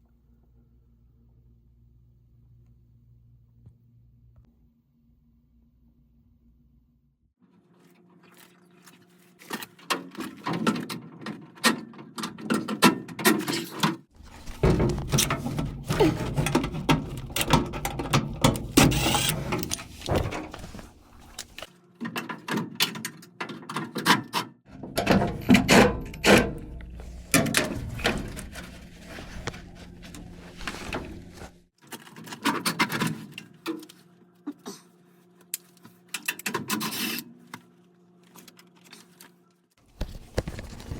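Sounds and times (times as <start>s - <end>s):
steady low hum: 24.7s - 31.7s.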